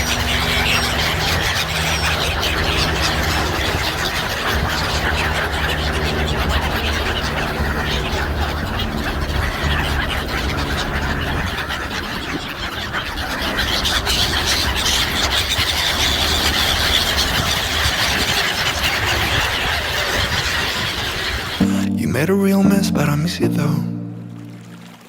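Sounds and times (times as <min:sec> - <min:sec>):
sea birds calling: 0:00.0 - 0:25.0.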